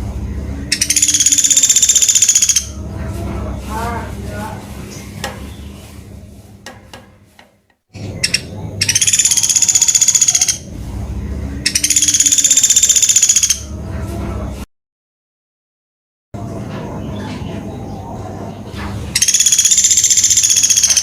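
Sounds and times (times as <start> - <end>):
steady low hum: 0.0 - 14.7
woodpecker rattling calls: 0.7 - 2.8, 8.0 - 10.7, 11.7 - 13.7, 19.2 - 21.0.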